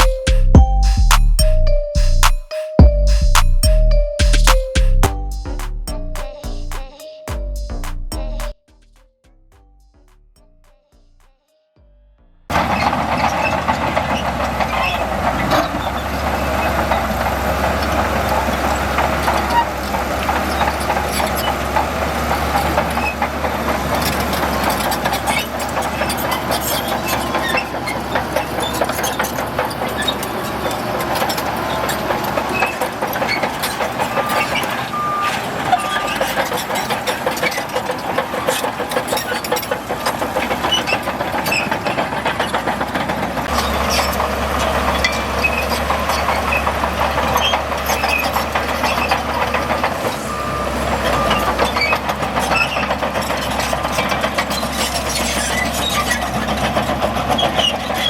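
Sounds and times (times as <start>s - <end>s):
reversing alarm beeps: 0.0s - 9.1s, 34.0s - 36.3s, 50.1s - 52.1s
diesel machinery engine running: 12.3s - 58.0s.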